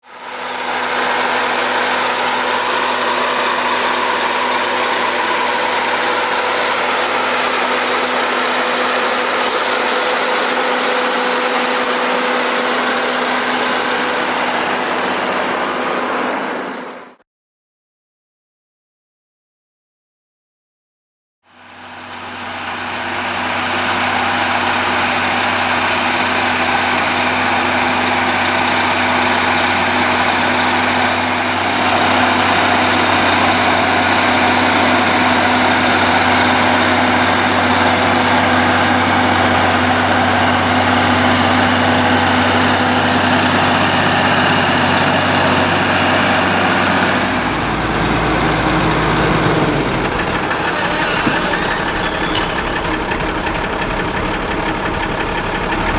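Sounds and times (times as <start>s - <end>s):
tractor engine running: 0.1s - 16.9s, 21.6s - 55.9s
deeper rumble: 46.5s - 55.9s.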